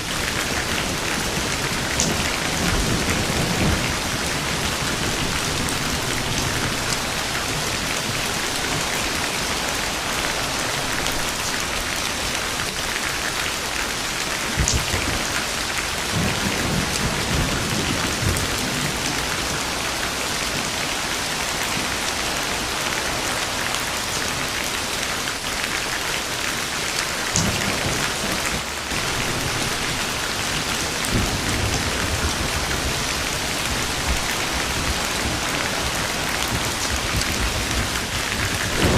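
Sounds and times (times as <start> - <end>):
thunder crack and rumbling: 0.0 - 12.3, 14.4 - 20.8, 27.3 - 38.9
steady rain: 0.0 - 38.9.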